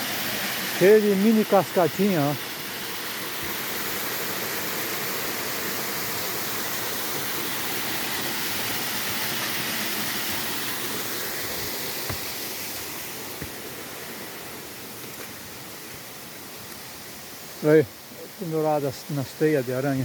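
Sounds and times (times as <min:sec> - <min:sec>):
water rushing over cascades: 0:00.0 - 0:20.0.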